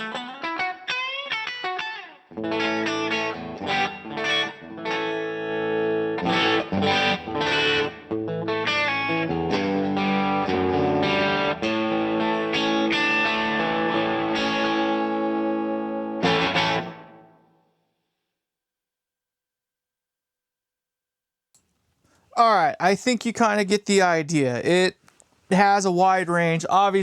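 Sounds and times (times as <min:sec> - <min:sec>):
distorted electric guitar: 0:00.0 - 0:17.4.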